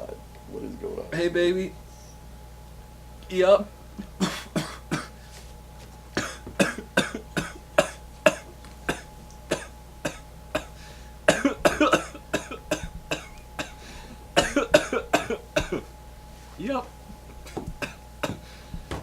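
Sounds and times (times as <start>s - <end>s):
person coughing: 4.0s - 5.2s, 6.2s - 13.8s, 14.4s - 15.9s, 17.4s - 18.4s.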